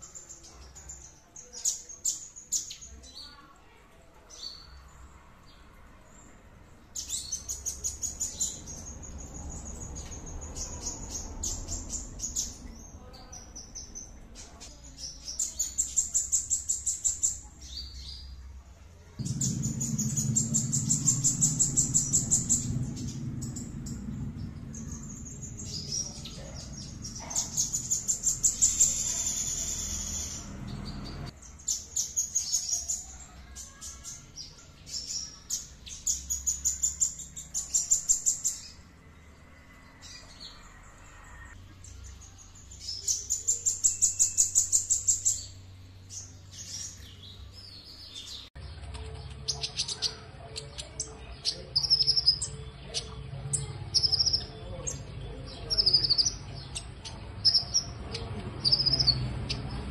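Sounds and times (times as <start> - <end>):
songbird singing: 0.0 - 59.9
low hum: 19.0 - 31.4.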